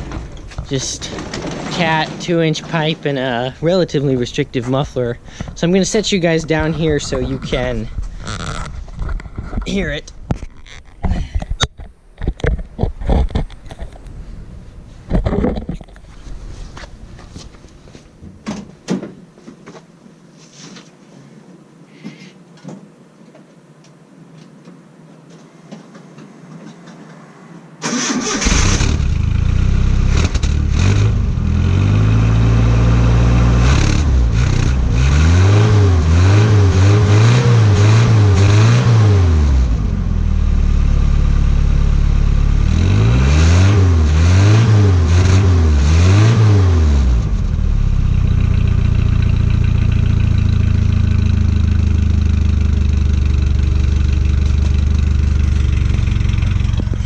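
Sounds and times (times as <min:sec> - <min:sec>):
pickup engine starting and idling: 0:27.8 - 0:31.2, 0:47.2 - 0:57.0.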